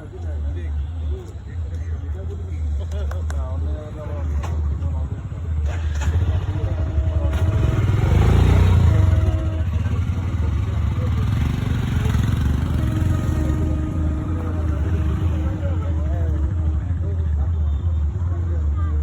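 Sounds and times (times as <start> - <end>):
faint voices: 0.0 - 19.0
motor vehicle passing: 5.6 - 16.9.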